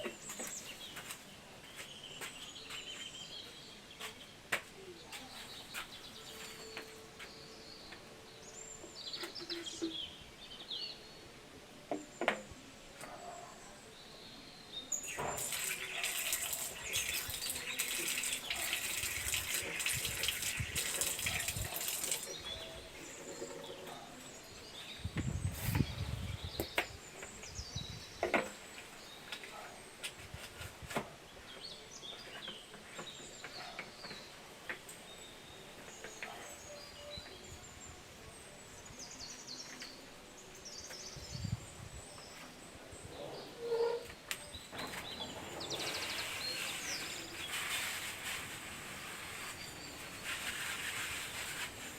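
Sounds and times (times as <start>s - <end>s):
birds chirping: 0.0s - 30.1s, 31.3s - 51.9s
water hissing: 15.0s - 22.4s.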